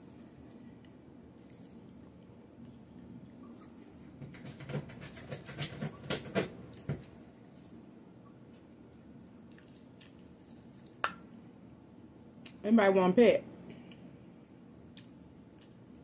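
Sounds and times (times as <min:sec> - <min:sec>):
person chewing: 0:09.4 - 0:11.1.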